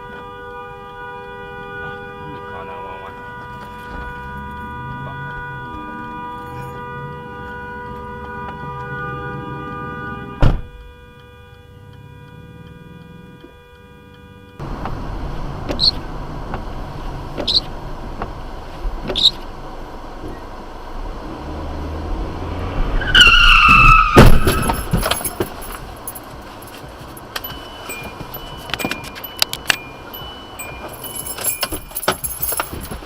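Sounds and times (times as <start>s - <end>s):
road noise: 0.0s - 33.0s
car tyres screeching: 11.6s - 33.0s
crash impact: 23.7s - 25.7s.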